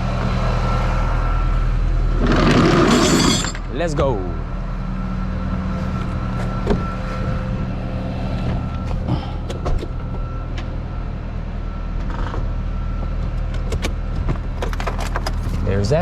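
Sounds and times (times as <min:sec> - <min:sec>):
tow truck engine idling: 0:03.6 - 0:16.0.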